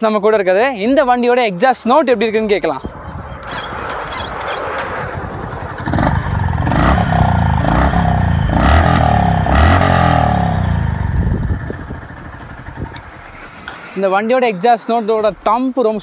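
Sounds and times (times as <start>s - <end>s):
motorcycle engine revving: 3.4s - 13.8s.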